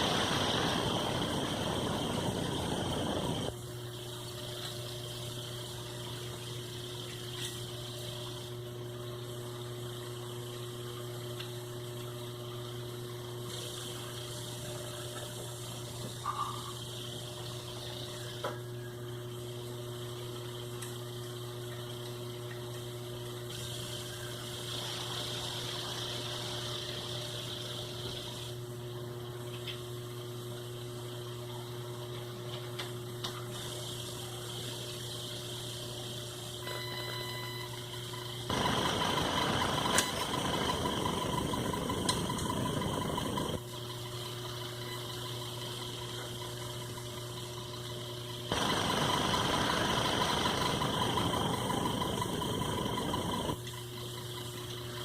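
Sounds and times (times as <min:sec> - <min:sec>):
sewing machine motor humming: 0:38.5 - 0:43.6, 0:48.5 - 0:53.7.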